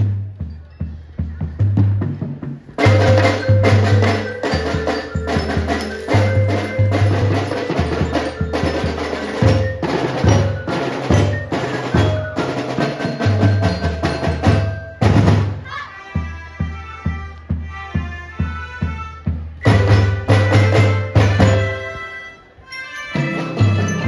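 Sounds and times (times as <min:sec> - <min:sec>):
drums beating: 0:00.0 - 0:22.1, 0:23.1 - 0:24.0
marching band music: 0:01.8 - 0:24.0
glockenspiel bells melody: 0:02.8 - 0:15.5, 0:19.6 - 0:24.0.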